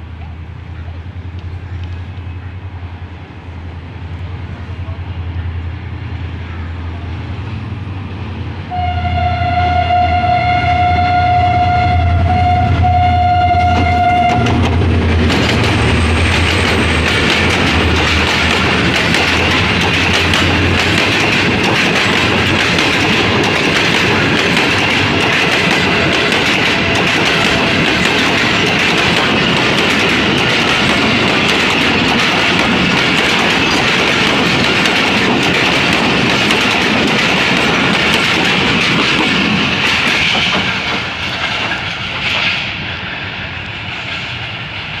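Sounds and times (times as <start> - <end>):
train coaches rolling over rails: 11.6 - 45.0.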